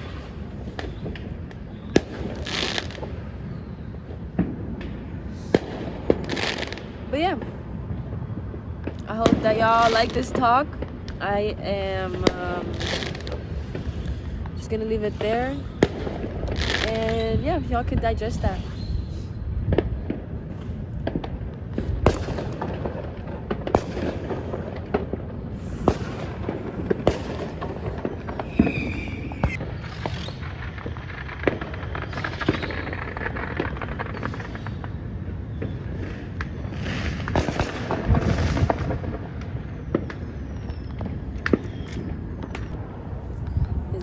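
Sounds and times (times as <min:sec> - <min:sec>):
falling firework whistle: 0:00.0 - 0:06.8, 0:15.1 - 0:17.6, 0:18.6 - 0:20.7, 0:23.7 - 0:44.0
firecracker crackling: 0:00.0 - 0:44.0
firework bangs and pops: 0:00.0 - 0:44.0.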